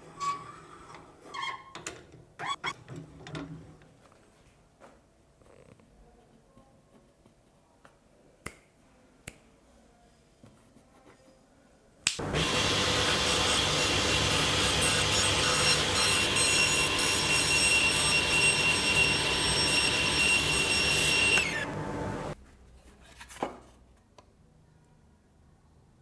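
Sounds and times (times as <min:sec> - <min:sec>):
power tool motor whining: 0:12.2 - 0:22.4.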